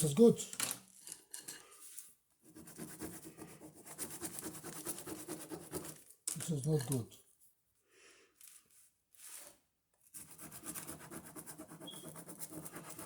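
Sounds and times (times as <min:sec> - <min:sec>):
ballpoint pen scribbling on paper: 0:02.4 - 0:06.0, 0:10.1 - 0:13.0.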